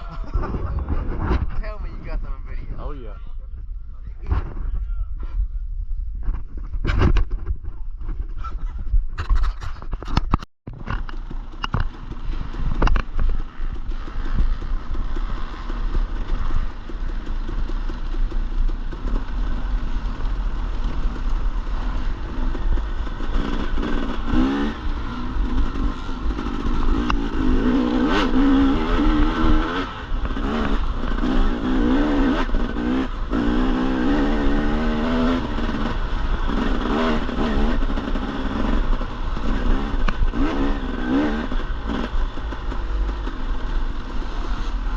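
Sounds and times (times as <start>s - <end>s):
dirt bike engine revving: 11.1s - 44.9s.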